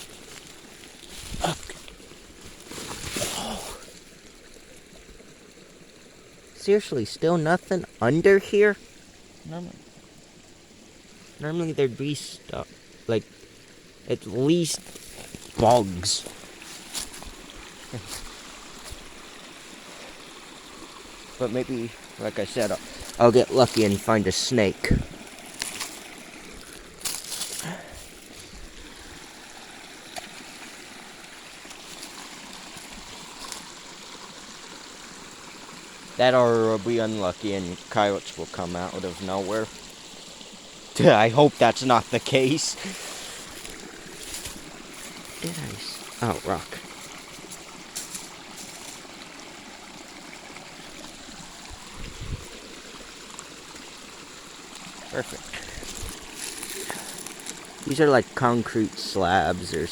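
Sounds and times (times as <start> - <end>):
scuffing rustling noise: 0.0 - 3.5, 14.8 - 17.4, 25.5 - 28.6, 43.0 - 45.4
creek water running: 0.0 - 59.9.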